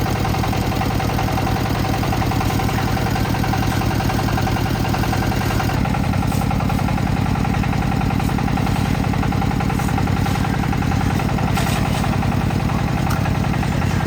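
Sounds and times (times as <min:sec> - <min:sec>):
concrete mixer engine chugging: 0:00.0 - 0:14.0.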